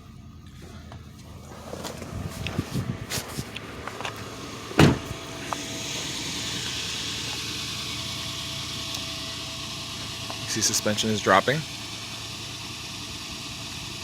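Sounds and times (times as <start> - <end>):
loud thump: 4.8 - 5.2.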